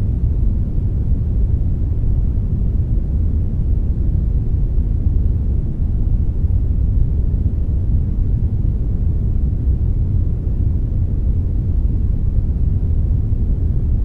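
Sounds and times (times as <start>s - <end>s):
brown noise rumble-hiss: 0.0s - 14.0s.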